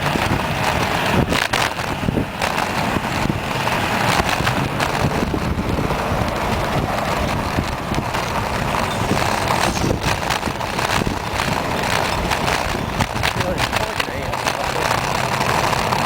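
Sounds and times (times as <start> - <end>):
road rumble: 0.0 - 16.0
wind buffeting microphone: 0.0 - 16.0.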